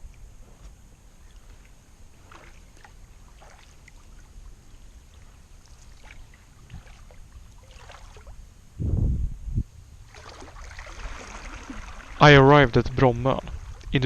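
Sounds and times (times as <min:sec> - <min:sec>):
low steady rumble: 0:00.0 - 0:14.0
paddle splashes: 0:01.2 - 0:08.4, 0:10.0 - 0:14.0
water trickling: 0:01.2 - 0:08.7, 0:10.0 - 0:14.0.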